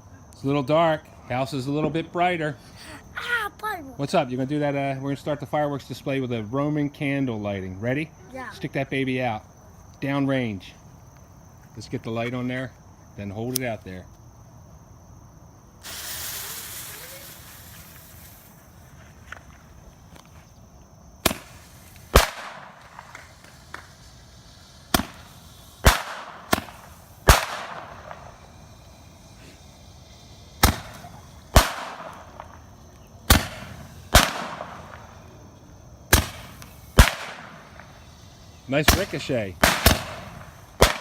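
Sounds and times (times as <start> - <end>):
roman candle pops with hiss: 15.8 - 20.4, 21.2 - 35.3, 36.1 - 41.0.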